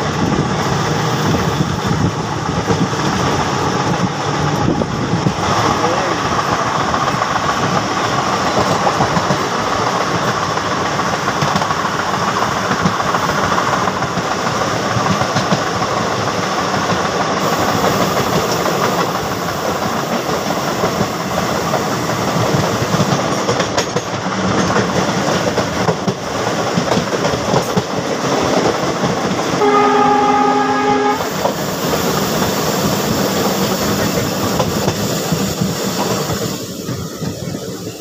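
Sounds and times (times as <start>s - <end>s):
train wheels rumbling and clattering: 0.0s - 38.0s
train horn: 29.6s - 31.5s.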